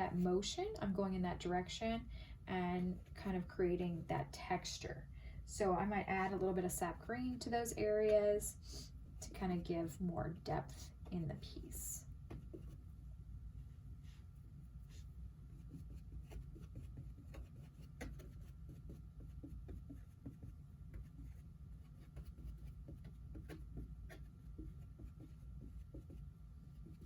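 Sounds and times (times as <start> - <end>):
low room hum: 0.0 - 27.0
paintbrush tapping and scraping canvas: 11.0 - 13.0, 14.0 - 27.0.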